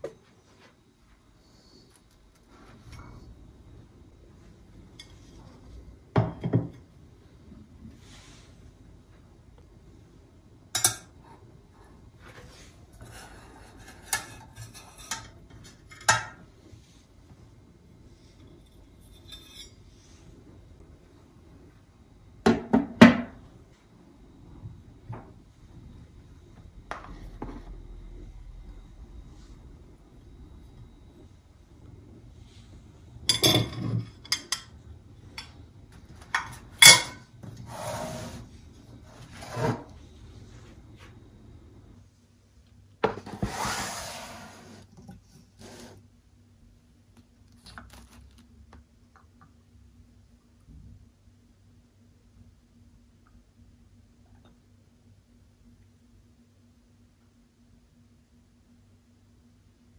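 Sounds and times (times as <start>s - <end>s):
surface being rubbed: 37.7s - 40.8s.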